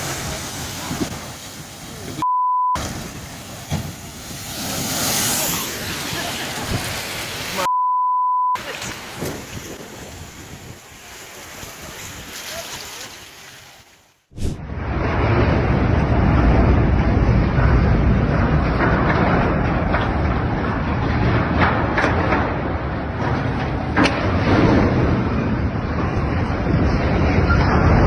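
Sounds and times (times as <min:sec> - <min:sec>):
wind noise: 0:00.0 - 0:02.2, 0:02.8 - 0:07.6, 0:08.6 - 0:12.6, 0:14.3 - 0:28.0
water noise: 0:00.0 - 0:07.8, 0:08.5 - 0:28.0
censor bleeps: 0:02.2 - 0:02.8, 0:07.7 - 0:08.6.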